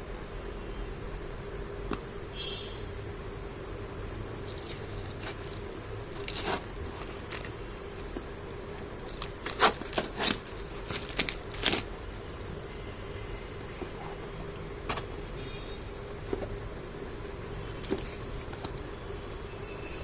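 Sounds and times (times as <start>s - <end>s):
packaging ripping and scraping: 4.2s - 7.5s, 9.0s - 11.9s.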